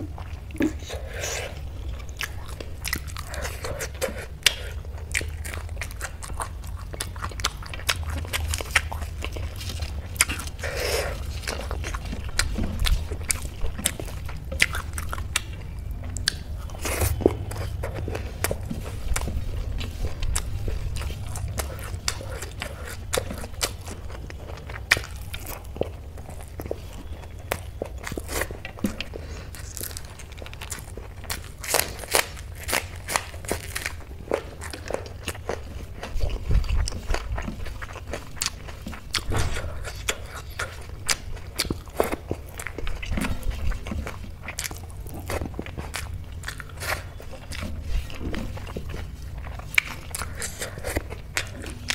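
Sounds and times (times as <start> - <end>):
chewing: 0.0 - 51.9.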